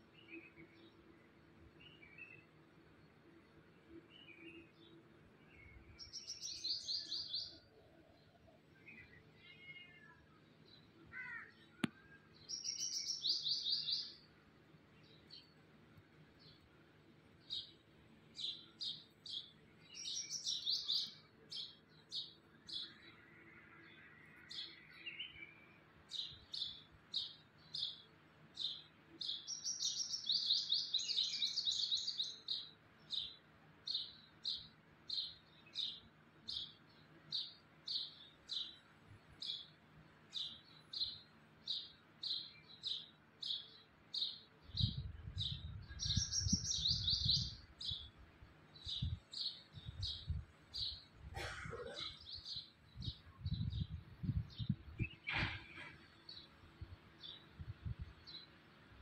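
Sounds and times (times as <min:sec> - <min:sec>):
small birds chirping: 0:00.0 - 0:59.0
birds chattering: 0:50.8 - 0:53.9.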